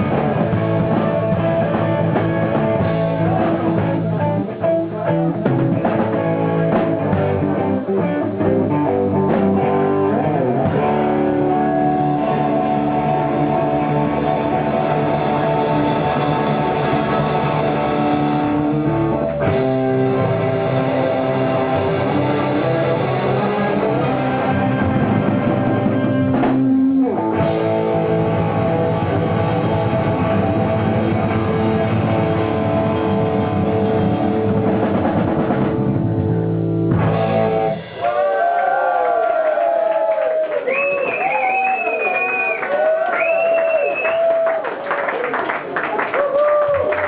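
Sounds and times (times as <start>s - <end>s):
crowd voices: 0.0s - 36.2s
drum kit: 0.0s - 38.6s
bass guitar: 0.0s - 44.8s
electric guitar: 0.0s - 47.0s
crowd whistling: 38.0s - 45.4s.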